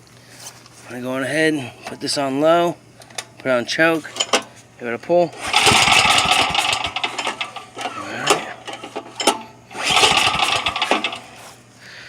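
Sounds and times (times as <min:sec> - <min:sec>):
generator starter rope pulled: 0:05.3 - 0:11.6.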